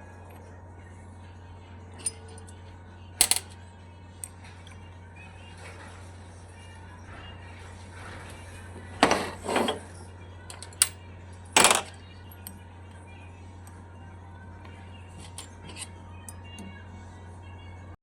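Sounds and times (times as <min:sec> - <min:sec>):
steady low hum: 0:00.0 - 0:18.0
metal tools clinking: 0:02.0 - 0:02.6, 0:09.0 - 0:11.0, 0:15.2 - 0:16.4.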